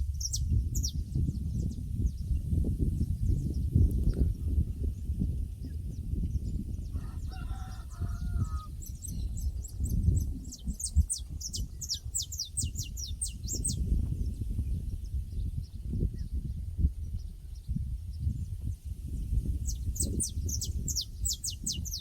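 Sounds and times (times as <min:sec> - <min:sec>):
small bird chirping: 0:08.1 - 0:16.4, 0:19.4 - 0:22.0.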